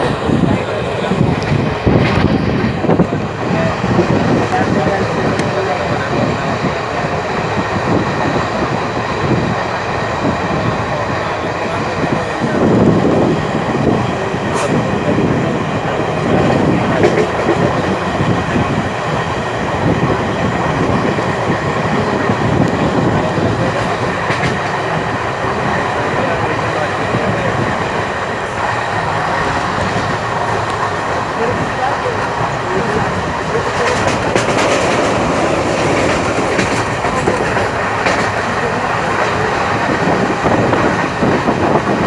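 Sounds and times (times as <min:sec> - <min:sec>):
train wheels running on rails: 0:00.0 - 0:42.0
sharp rail clicks: 0:15.7 - 0:42.0.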